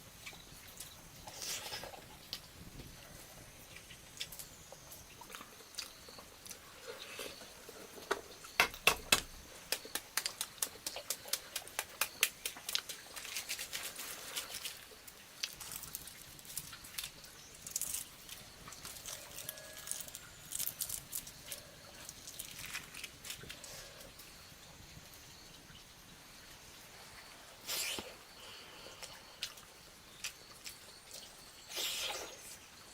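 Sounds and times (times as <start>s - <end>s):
crisp clicks and crackles: 9.2s - 23.7s.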